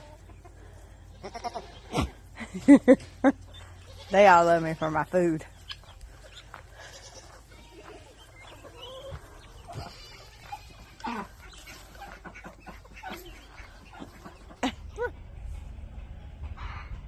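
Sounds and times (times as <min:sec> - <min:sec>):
chickens clucking: 0:00.0 - 0:15.2.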